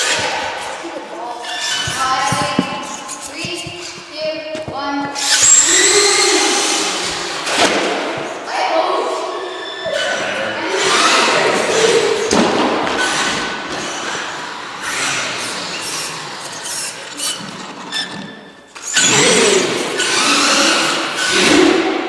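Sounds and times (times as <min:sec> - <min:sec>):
knocks: 0:01.7 - 0:05.3
toy trucks motors whining: 0:05.2 - 0:07.6, 0:13.0 - 0:21.5.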